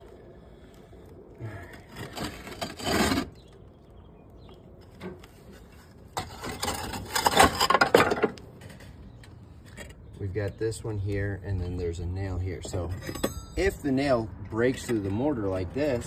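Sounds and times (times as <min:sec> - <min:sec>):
hand tool scraping masonry: 0:01.8 - 0:03.4, 0:05.4 - 0:08.0.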